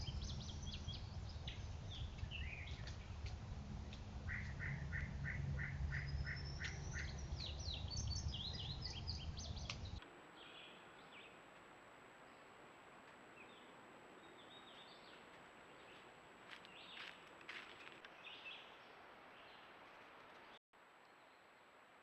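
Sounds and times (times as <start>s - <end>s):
low hum: 0.0s - 10.0s
wild birds calling: 0.0s - 11.4s.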